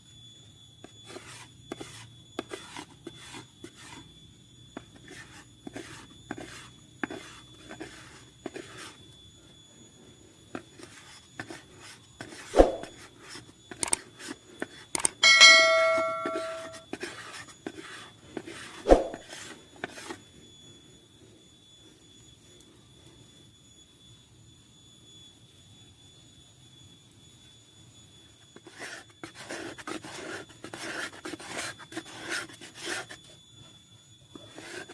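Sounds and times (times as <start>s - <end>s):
sharp scraping strokes: 10.8s - 13.4s, 15.2s - 19.5s
struck metal ringing: 15.2s - 16.8s.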